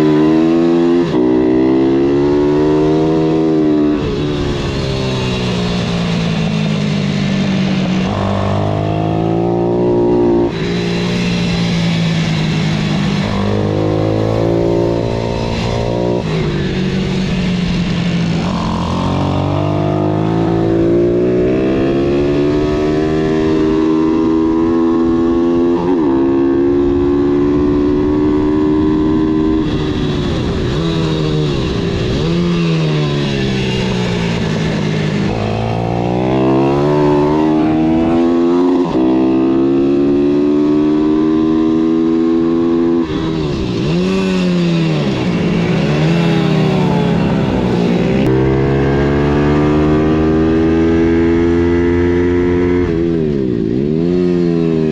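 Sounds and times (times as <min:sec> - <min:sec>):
pitbike engine revving: 0:07.8 - 0:54.5.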